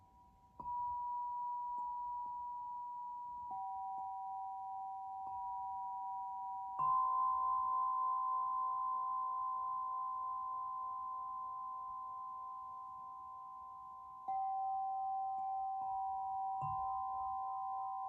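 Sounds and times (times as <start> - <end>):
struck singing bowls ringing: 14.2 - 18.0.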